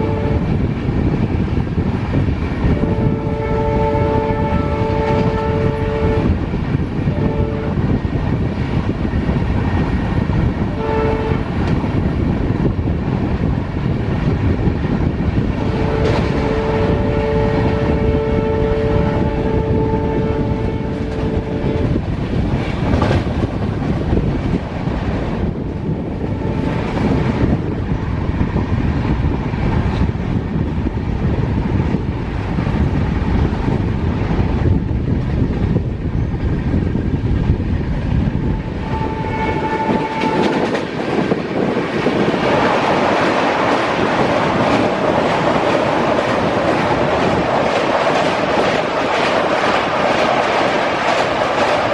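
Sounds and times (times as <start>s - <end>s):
locomotive horn blasts: 0.0s - 0.6s, 2.8s - 6.4s, 7.1s - 7.9s, 10.7s - 11.5s, 15.6s - 22.0s, 38.6s - 40.8s
train rumbling at speed: 0.0s - 51.9s.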